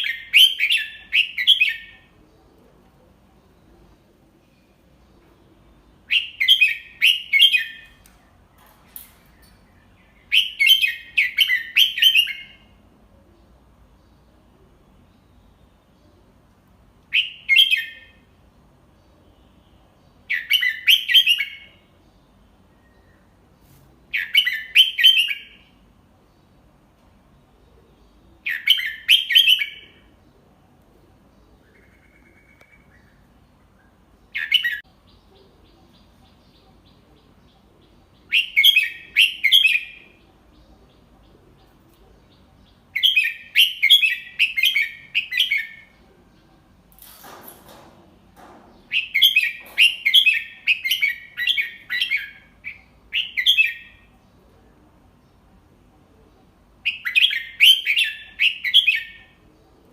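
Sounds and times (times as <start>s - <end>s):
bulbul singing: 3.2s - 14.0s, 31.4s - 47.1s, 48.4s - 54.2s, 56.4s - 59.5s.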